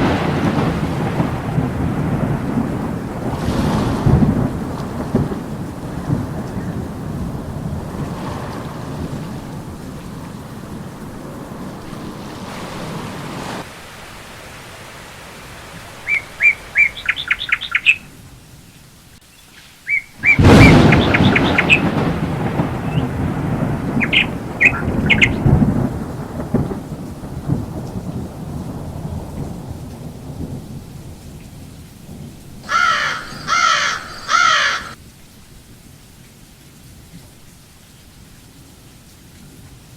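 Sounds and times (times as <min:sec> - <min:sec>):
thunder rumbling: 0:00.0 - 0:14.3, 0:20.2 - 0:35.0
heavy rain falling: 0:00.0 - 0:39.9
birds chirping: 0:16.0 - 0:18.1, 0:19.4 - 0:23.3, 0:23.9 - 0:25.6, 0:32.6 - 0:35.0.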